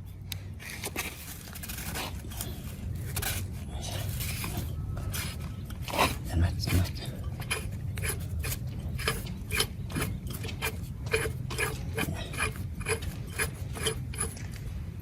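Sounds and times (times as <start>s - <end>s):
low steady hum: 0.0s - 15.0s
metallic clicks and scrapes: 0.3s - 14.7s.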